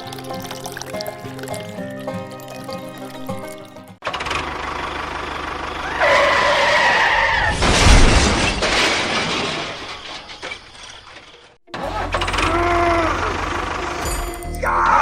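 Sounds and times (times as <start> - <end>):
high screech of skidding: 5.8 - 7.6
loud crash with deep rumble: 7.4 - 10.4.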